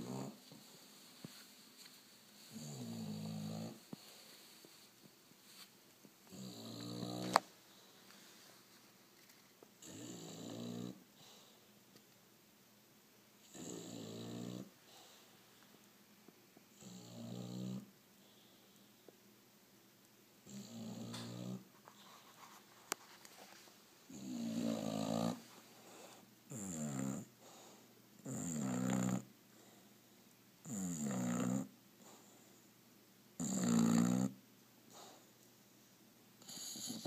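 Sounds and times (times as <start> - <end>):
dog snoring: 0.0 - 0.7, 2.5 - 4.1, 6.3 - 7.5, 9.8 - 11.3, 13.4 - 14.7, 16.7 - 17.9, 20.4 - 21.7, 24.1 - 25.5, 26.5 - 29.3, 30.6 - 32.2, 33.4 - 35.2, 36.4 - 37.0.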